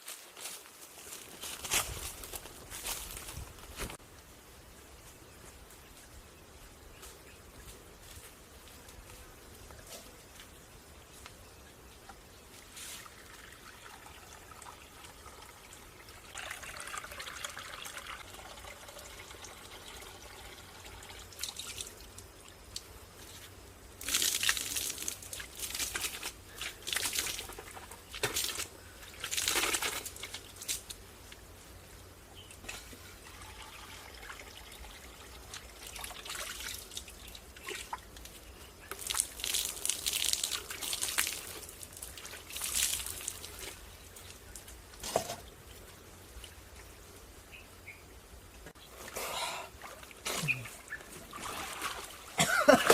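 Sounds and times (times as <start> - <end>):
faint water trickle: 11.6 - 31.5, 32.4 - 44.8
water pouring and splashing: 12.6 - 22.9, 24.0 - 30.9, 32.7 - 45.4, 48.9 - 52.9.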